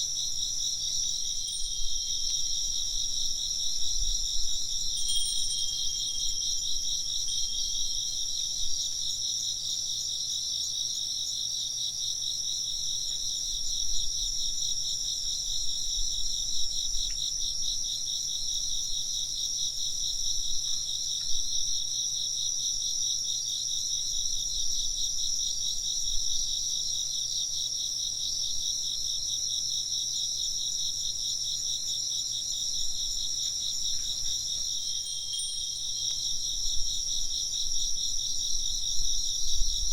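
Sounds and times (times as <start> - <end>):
insects trilling: 0.0 - 39.9
wind chime tone: 1.3 - 8.8, 34.0 - 37.6.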